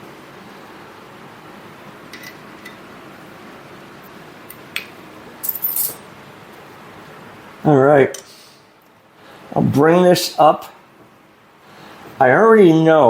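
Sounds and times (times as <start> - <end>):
low steady hiss: 0.0 - 13.0
metal tools clinking: 5.4 - 6.1.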